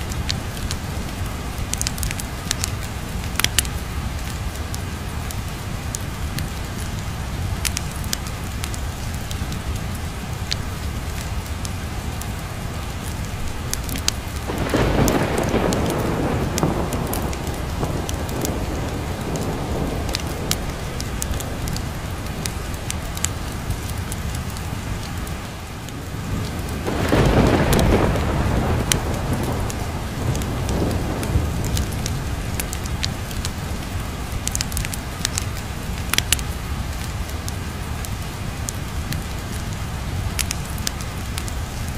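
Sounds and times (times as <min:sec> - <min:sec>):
constant low rumble: 0:00.0 - 0:41.9
sharp crackles: 0:00.0 - 0:41.9
steady rain: 0:00.0 - 0:41.9
thunder rolling: 0:14.4 - 0:24.0, 0:26.0 - 0:33.8.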